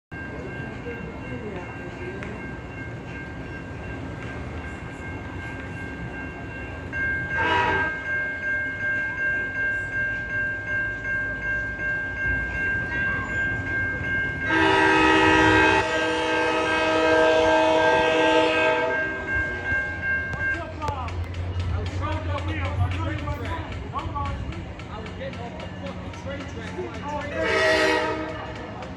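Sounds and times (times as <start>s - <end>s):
railroad crossing bell ringing: 0.1s - 28.9s
train rumbling: 0.1s - 28.9s
train horn blast: 7.4s - 8.0s, 14.5s - 19.2s, 27.3s - 28.6s.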